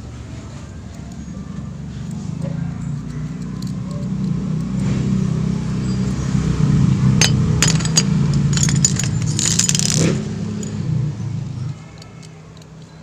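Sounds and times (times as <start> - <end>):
small metal parts clinking: 0.8 - 4.8, 7.2 - 13.0.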